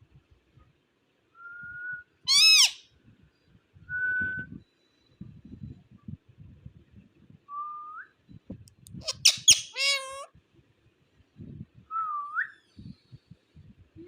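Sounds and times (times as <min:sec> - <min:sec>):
parakeet harsh squawks: 0:02.3 - 0:02.8, 0:09.0 - 0:10.3.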